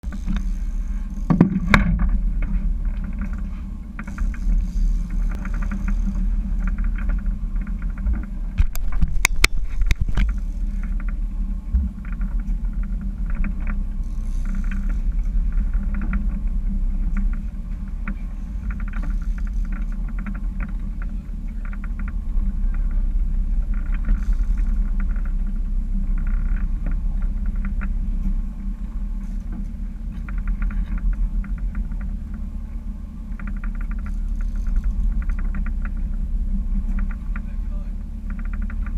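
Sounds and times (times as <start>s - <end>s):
boat engine rumbling: 0.0s - 38.9s.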